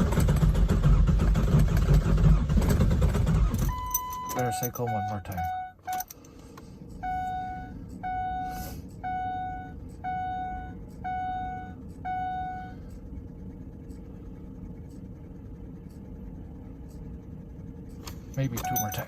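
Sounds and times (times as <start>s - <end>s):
low steady cab hum: 0.0s - 19.0s
dashboard warning chime beeps: 3.7s - 6.2s, 6.9s - 13.0s, 18.4s - 19.0s.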